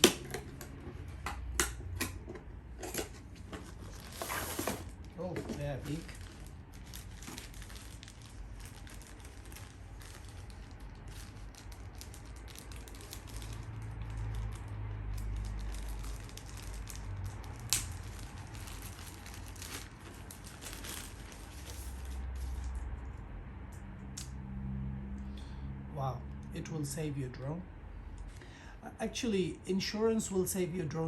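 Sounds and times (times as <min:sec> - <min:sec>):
plastic packaging crinkling: 0:03.6 - 0:22.8.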